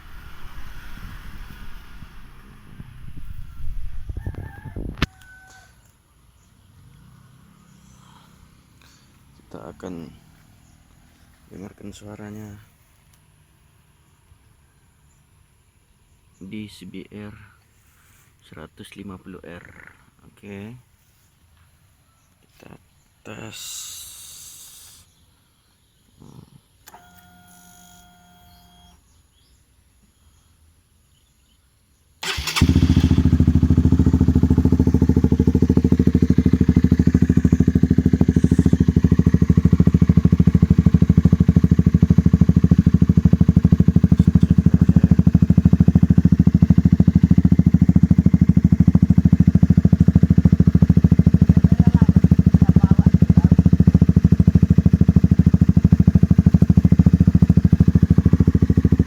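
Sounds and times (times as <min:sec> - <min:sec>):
motorcycle engine idling: 0:00.0 - 0:04.9, 0:32.2 - 0:59.0
motorcycle engine starting: 0:00.0 - 0:05.0, 0:06.7 - 0:11.4, 0:32.2 - 0:59.0.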